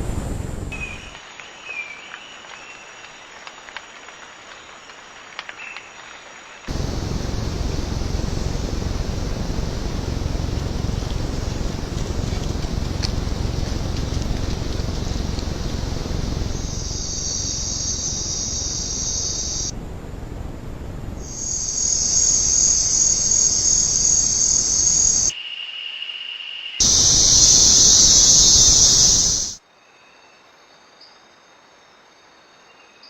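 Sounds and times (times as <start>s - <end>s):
insects shrill buzzing: 6.7s - 19.7s, 21.2s - 25.4s, 26.8s - 29.6s
low-pitched insect trill: 6.7s - 33.0s.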